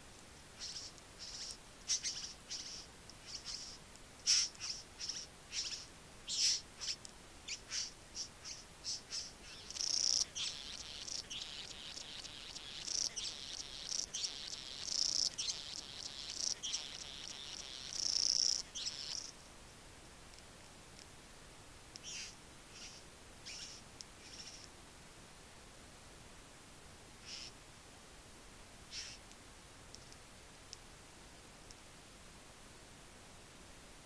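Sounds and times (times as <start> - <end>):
birds chirping and chattering: 0.6 - 19.3, 22.0 - 24.7.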